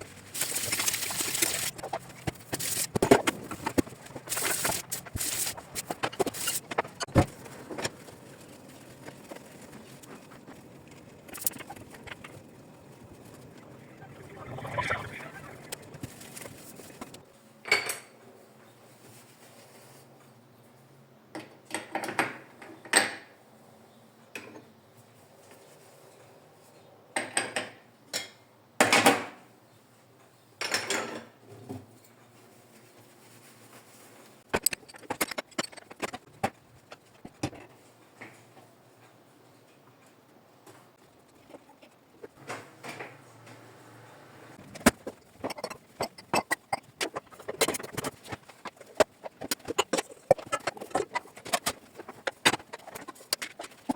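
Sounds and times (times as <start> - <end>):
rubbing handling noise: 0.0 - 17.2, 44.6 - 53.9
dishes and utensils clinking: 44.7 - 53.8.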